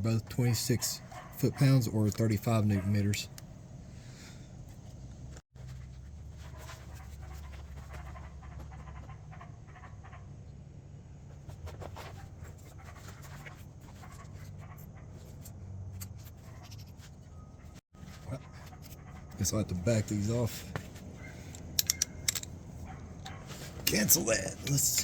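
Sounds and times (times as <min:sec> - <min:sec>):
light clicks and clinks: 0:21.3 - 0:23.9.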